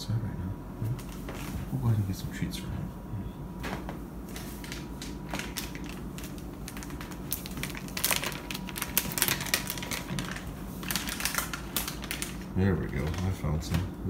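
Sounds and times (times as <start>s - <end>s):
hands rummaging through packaging: 3.6s - 13.9s
small clicks and crinkles: 3.6s - 13.9s.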